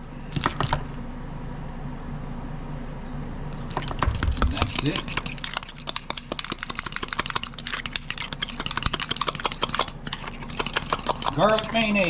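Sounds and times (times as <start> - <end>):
steady low hum: 0.0 - 12.0
utensil clicking against bowl: 3.7 - 12.0.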